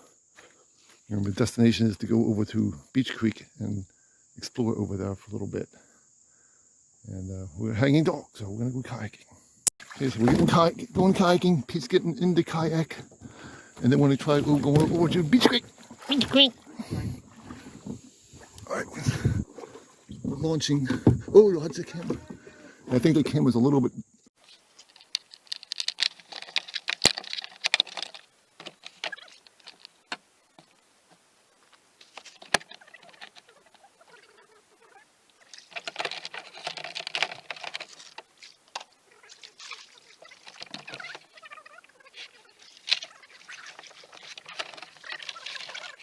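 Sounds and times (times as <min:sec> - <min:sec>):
paddles splashing water: 0:09.8 - 0:11.7, 0:12.4 - 0:23.2, 0:24.5 - 0:46.0.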